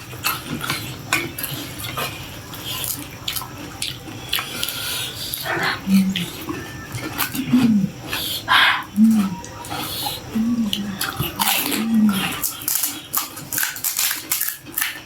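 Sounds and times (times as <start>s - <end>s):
crisp shells crunching: 11.0s - 15.0s.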